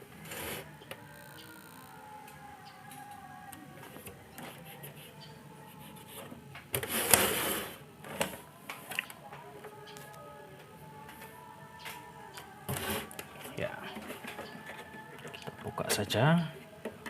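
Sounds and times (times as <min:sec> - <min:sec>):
scraping and rustling on workbench: 0:05.9 - 0:08.5, 0:12.7 - 0:15.1.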